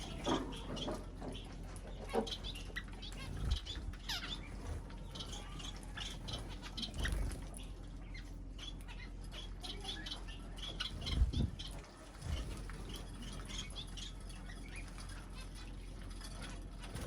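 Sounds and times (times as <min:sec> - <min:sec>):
wings flapping: 0:00.0 - 0:08.9, 0:10.6 - 0:17.0
small birds chirping: 0:00.0 - 0:17.0
soft low thumps: 0:11.0 - 0:12.8.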